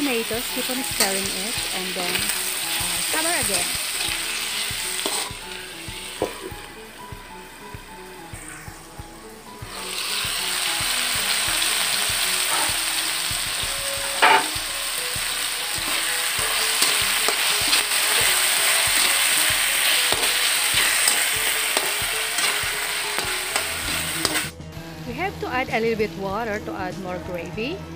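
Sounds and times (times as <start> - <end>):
food sizzling in hot oil: 0.0 - 24.5
spatula scraping a pan: 2.1 - 6.5, 11.2 - 13.0, 13.9 - 14.7, 15.6 - 24.5.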